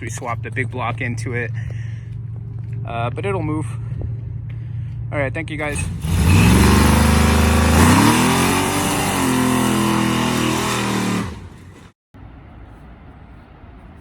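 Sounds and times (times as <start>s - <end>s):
drag car engine revving: 5.7s - 11.9s.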